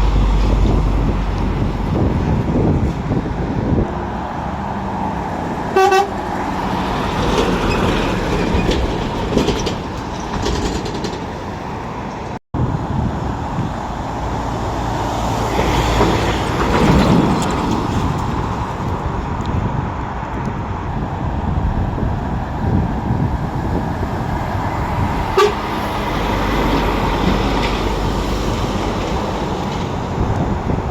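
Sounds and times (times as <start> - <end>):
traffic noise: 0.0 - 30.9
vehicle horn toot: 5.8 - 6.2, 25.4 - 25.6.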